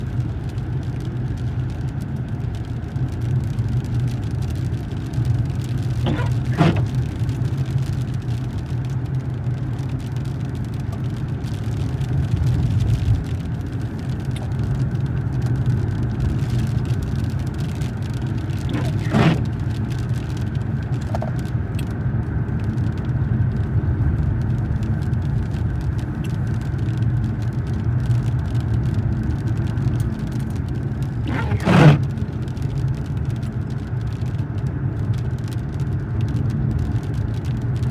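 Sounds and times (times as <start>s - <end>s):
car cabin rumble: 5.3s - 21.5s, 29.6s - 32.6s.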